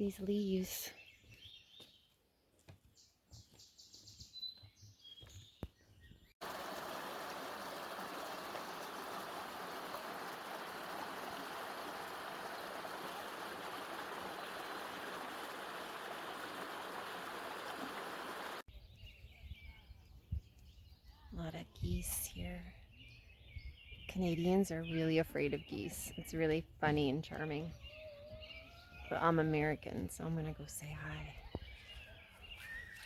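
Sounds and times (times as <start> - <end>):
running water: 6.4 - 18.6
faint bird chirps: 27.5 - 29.3, 29.9 - 33.0.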